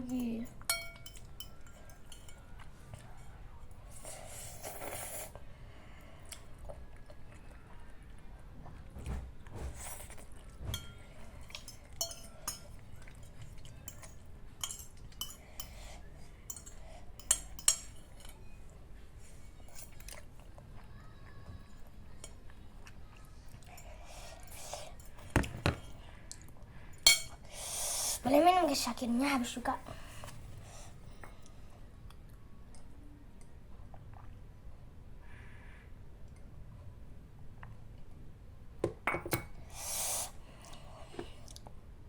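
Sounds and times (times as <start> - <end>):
utensil clinking against bowl: 0.0 - 2.4, 10.7 - 12.8, 13.8 - 15.8, 16.5 - 18.3, 27.0 - 27.4.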